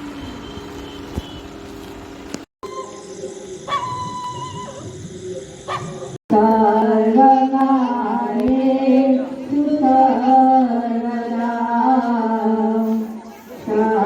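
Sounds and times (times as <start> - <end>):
voices singing a chant: 3.0 - 14.0.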